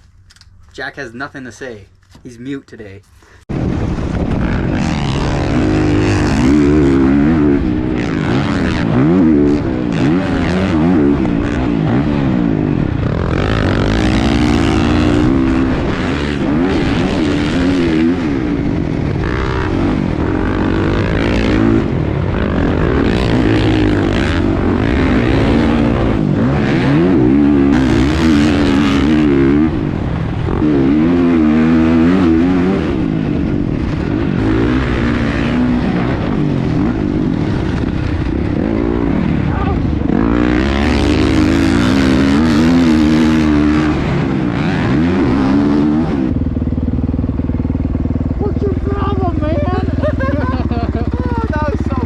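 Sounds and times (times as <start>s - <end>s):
dirt bike engine revving: 3.5s - 52.0s.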